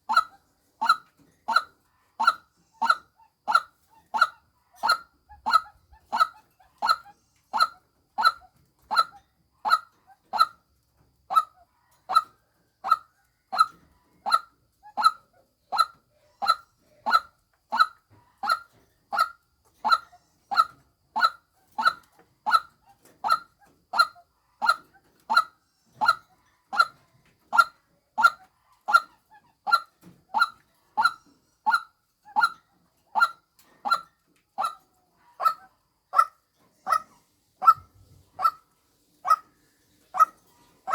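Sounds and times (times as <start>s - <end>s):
waterhen calling: 36.9s - 39.5s, 40.1s - 40.9s.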